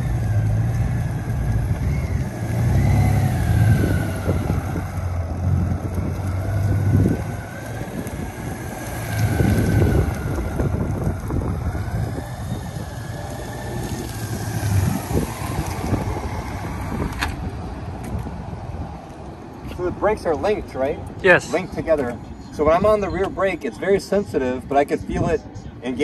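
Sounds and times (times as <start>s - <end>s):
wind on microphone: 1.1s - 19.8s.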